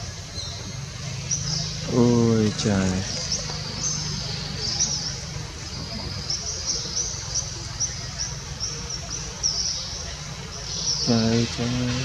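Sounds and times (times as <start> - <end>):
bird chirping: 0.0 - 12.0
low steady background noise: 0.0 - 12.0.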